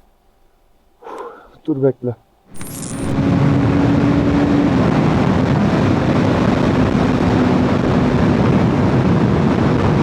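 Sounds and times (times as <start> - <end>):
motorcycle engine hum: 2.5 - 9.4
wind rushing over microphone: 2.5 - 10.0.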